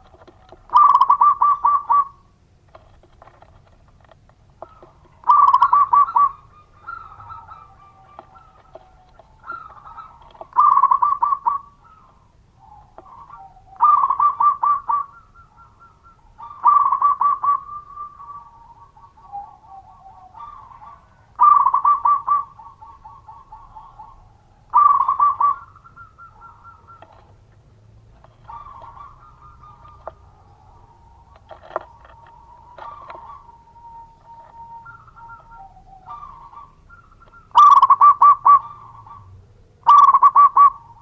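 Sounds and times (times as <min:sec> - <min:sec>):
dove cooing: 0:00.0 - 0:41.0.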